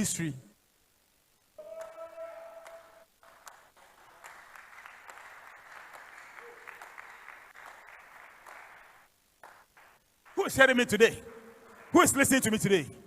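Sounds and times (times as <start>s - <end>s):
short held tone: 1.6s - 3.0s
faint applause: 1.6s - 12.5s.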